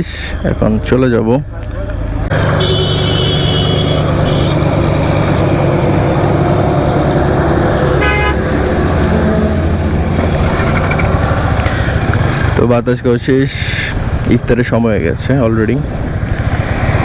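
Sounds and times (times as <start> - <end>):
road traffic engine drone: 0.0 - 17.0
vehicle horns: 2.3 - 9.9.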